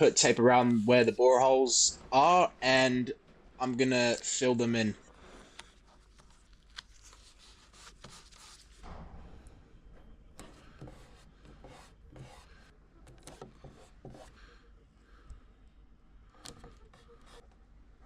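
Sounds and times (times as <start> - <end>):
tape rubbing and handling: 5.5 - 8.8.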